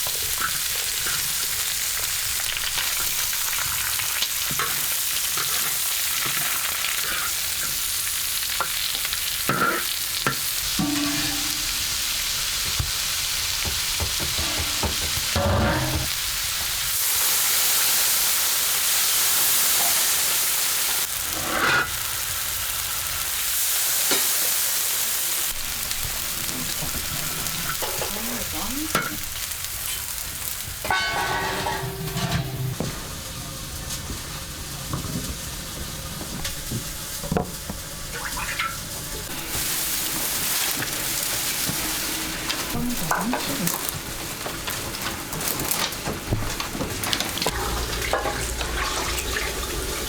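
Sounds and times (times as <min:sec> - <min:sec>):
food sizzling in hot oil: 0:00.0 - 0:50.0
sharp knocks and scrapes: 0:13.7 - 0:16.2, 0:30.8 - 0:33.1.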